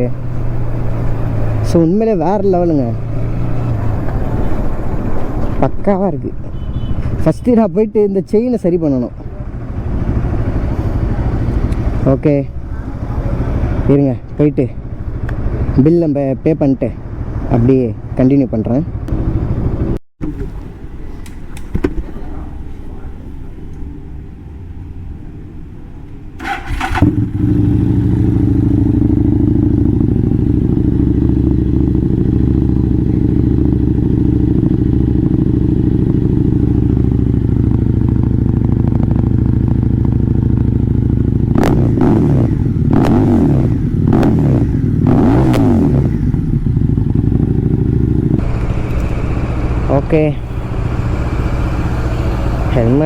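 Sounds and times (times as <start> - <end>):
motorcycle engine revving: 0.0 - 5.8, 9.3 - 14.0, 16.9 - 21.0, 22.0 - 53.0
motorcycle engine starting and idling: 18.9 - 53.0.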